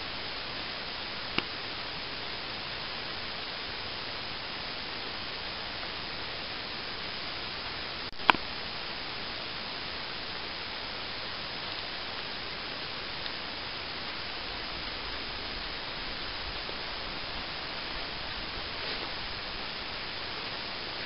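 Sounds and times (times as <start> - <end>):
static hiss: 0.0 - 21.0.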